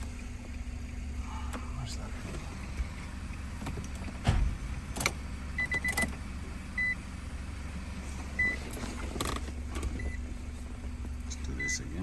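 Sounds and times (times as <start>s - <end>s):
short electronic beeps: 5.6s - 6.0s, 6.8s - 7.0s, 8.4s - 8.6s, 10.0s - 10.2s, 11.3s - 12.0s.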